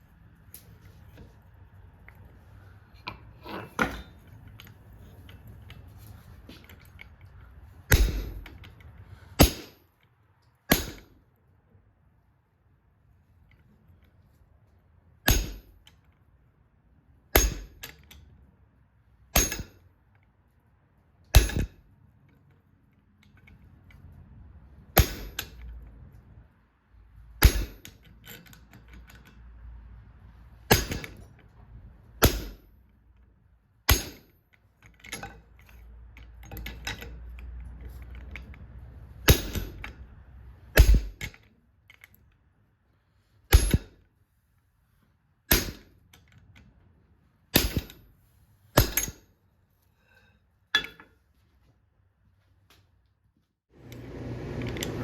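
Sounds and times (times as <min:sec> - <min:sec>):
hammer striking steel on anvil: 0:07.9 - 0:08.6, 0:09.4 - 0:09.8, 0:10.7 - 0:11.2, 0:15.2 - 0:15.8, 0:17.3 - 0:17.8, 0:19.3 - 0:19.8, 0:21.3 - 0:21.8, 0:25.0 - 0:25.6, 0:27.4 - 0:28.0, 0:30.7 - 0:31.2, 0:32.2 - 0:32.7, 0:33.9 - 0:34.4, 0:39.3 - 0:39.9, 0:40.7 - 0:41.3, 0:43.5 - 0:44.0, 0:45.5 - 0:46.0, 0:47.5 - 0:48.1, 0:48.8 - 0:49.3
low steady rumble: 0:35.4 - 0:49.0.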